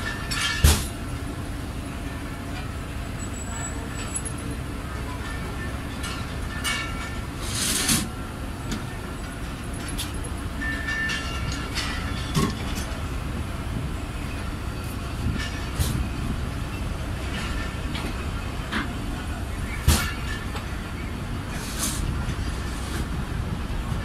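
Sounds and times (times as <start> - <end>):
train clanks and knocks: 0.0 - 24.0
train wheels rumbling on rails: 0.0 - 24.0.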